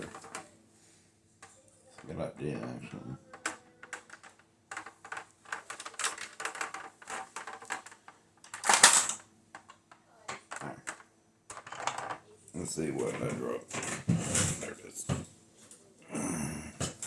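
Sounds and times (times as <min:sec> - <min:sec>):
plastic clatter: 0:00.0 - 0:00.5, 0:02.7 - 0:12.2, 0:13.0 - 0:15.3
plastic toy clicking and knocking: 0:00.0 - 0:00.5, 0:03.2 - 0:12.2.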